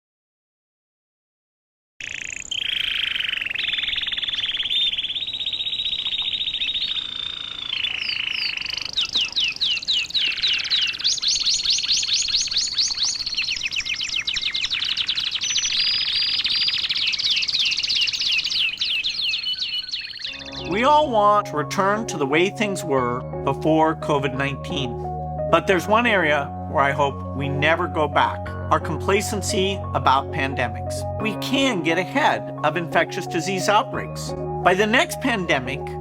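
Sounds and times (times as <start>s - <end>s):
canary singing trills: 2.0s - 22.1s.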